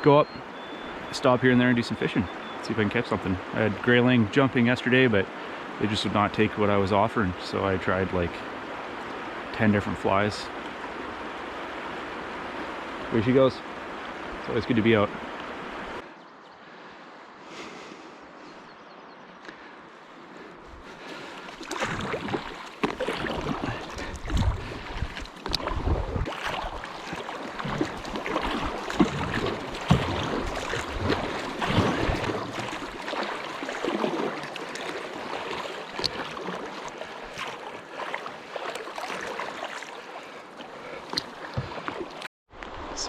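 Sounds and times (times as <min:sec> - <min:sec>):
water rushing around hull: 0:00.0 - 0:16.0, 0:20.2 - 0:43.0
paddle splashes and knocks: 0:20.8 - 0:42.3.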